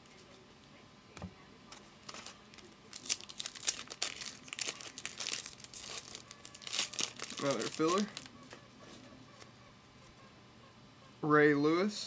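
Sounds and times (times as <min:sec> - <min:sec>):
card pack wrapper tearing and crinkling: 0:02.0 - 0:08.3.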